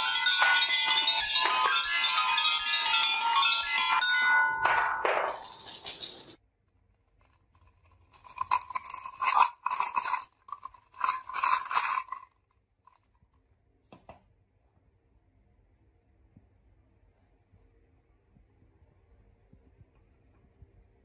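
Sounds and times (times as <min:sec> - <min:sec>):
marbles rattling on wooden run: 0:00.0 - 0:06.4, 0:07.2 - 0:13.0.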